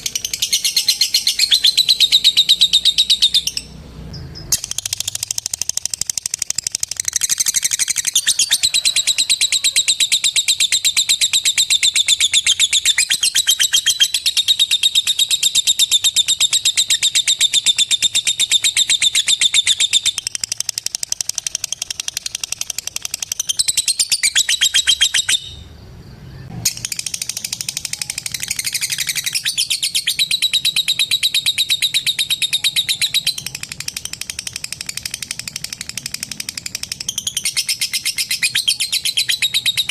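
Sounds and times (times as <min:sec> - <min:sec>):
lovebird chattering trill: 0:00.0 - 0:25.7, 0:26.4 - 0:39.9.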